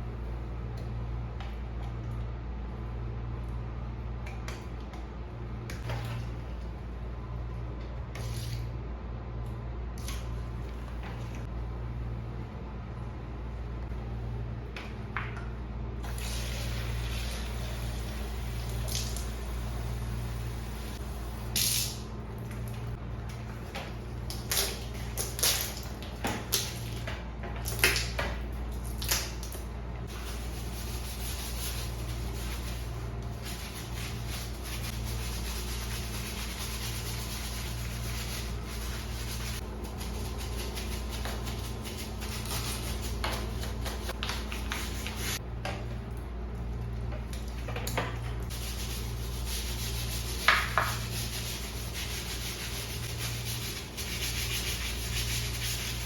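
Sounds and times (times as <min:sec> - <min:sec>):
scrubbing a surface: 0:30.0 - 0:45.4, 0:48.5 - 0:56.0.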